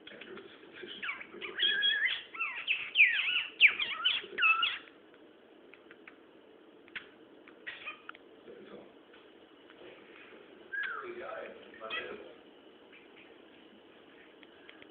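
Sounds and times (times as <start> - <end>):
cockatiel chattering and warbling: 0.9 - 4.9, 7.0 - 8.1.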